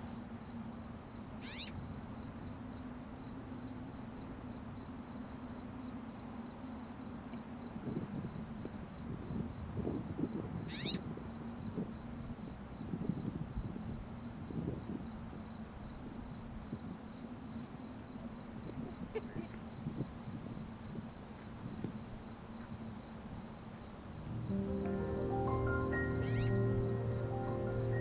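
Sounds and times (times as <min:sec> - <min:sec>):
cricket chirping trill: 0:17.1 - 0:28.0.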